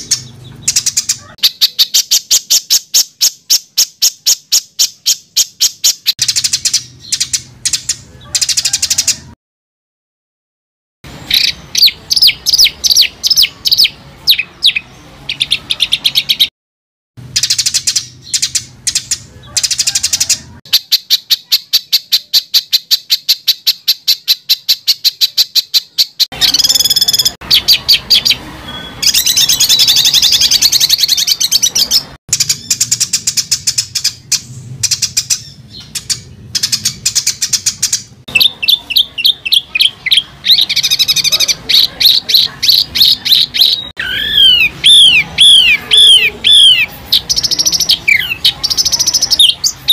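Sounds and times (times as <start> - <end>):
songbird singing harsh repeated notes: 0.0 - 9.4, 11.1 - 16.5, 17.2 - 49.9.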